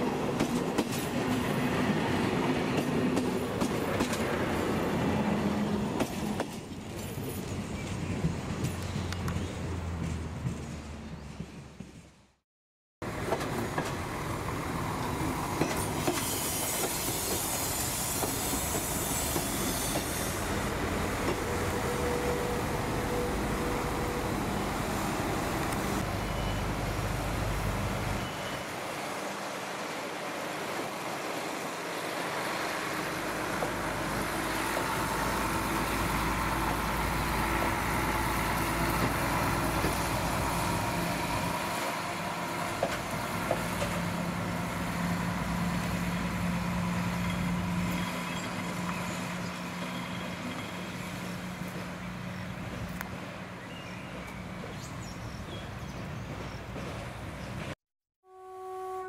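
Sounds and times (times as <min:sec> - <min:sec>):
train wheels rumbling on rails: 0:00.0 - 0:12.4, 0:13.0 - 0:29.2, 0:30.0 - 0:57.8
clickety-clack over rail joints: 0:00.2 - 0:04.6, 0:05.9 - 0:12.3, 0:13.0 - 0:14.1, 0:15.0 - 0:20.2, 0:38.6 - 0:40.4, 0:42.6 - 0:44.5, 0:56.0 - 0:57.8.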